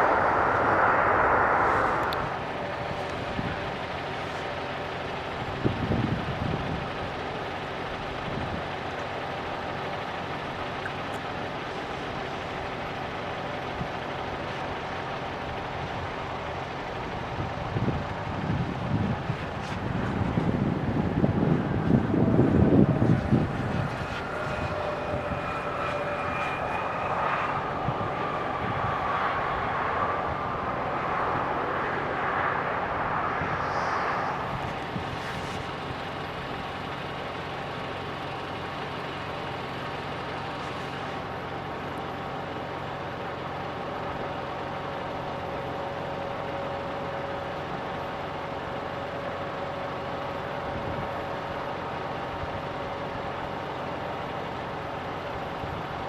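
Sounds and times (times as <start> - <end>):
jet engines whining: 0.0 - 6.4, 9.4 - 41.5.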